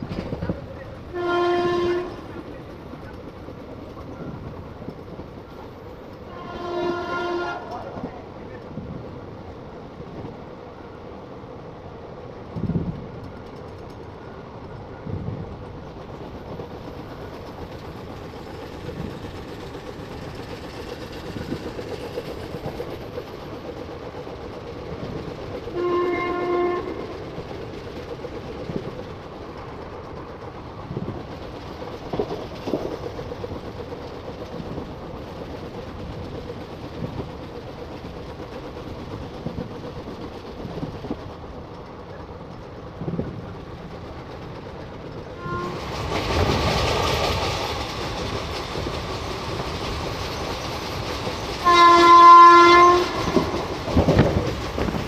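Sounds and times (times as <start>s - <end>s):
train horn: 1.1s - 2.3s, 6.3s - 8.0s, 25.7s - 27.1s, 45.4s - 45.8s, 51.6s - 53.5s
train wheels knocking over rail joints: 15.2s - 55.0s.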